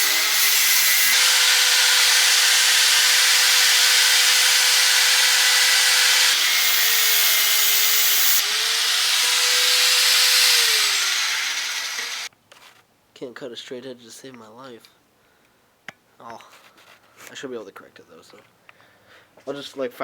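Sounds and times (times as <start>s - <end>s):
angle grinder cutting metal: 0.0s - 12.3s.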